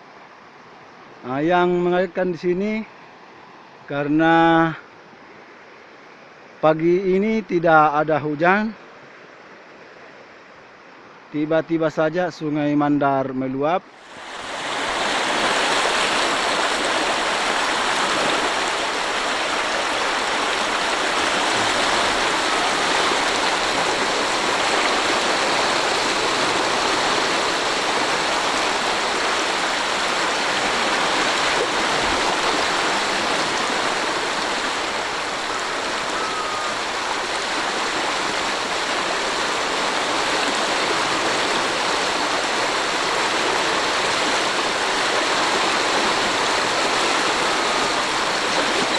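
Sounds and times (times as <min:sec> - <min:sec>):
flooded river rushing: 0:13.8 - 0:48.9.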